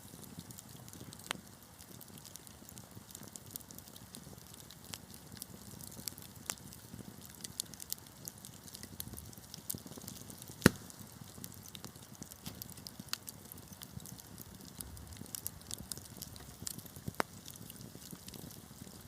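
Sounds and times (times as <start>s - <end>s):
wood fire crackling and popping: 0.0s - 19.0s
low rush of burning: 8.8s - 19.0s.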